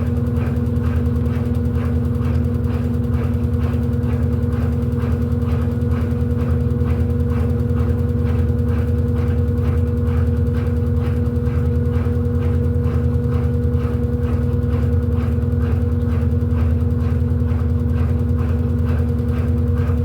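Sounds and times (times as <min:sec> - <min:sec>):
rhythmic water swish: 0:00.0 - 0:20.0
washing machine motor hum: 0:00.0 - 0:20.0.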